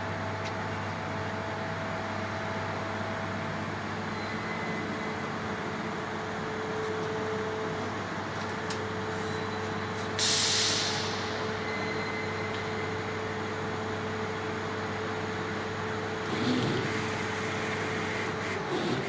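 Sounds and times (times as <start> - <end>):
burst of hissing air: 10.2 - 11.3
laser cutting machine humming: 11.5 - 19.0.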